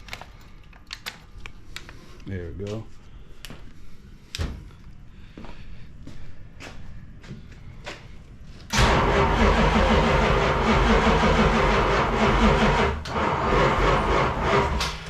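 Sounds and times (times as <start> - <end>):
car engine cranking on starter: 8.7 - 15.0.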